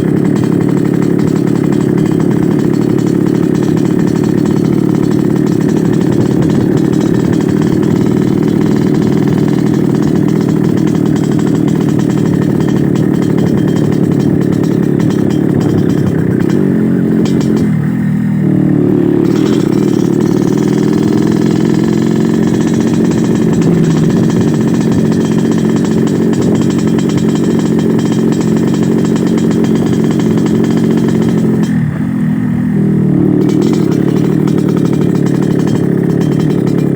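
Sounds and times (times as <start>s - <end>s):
two-stroke motorcycle engine growling: 0.0s - 36.9s.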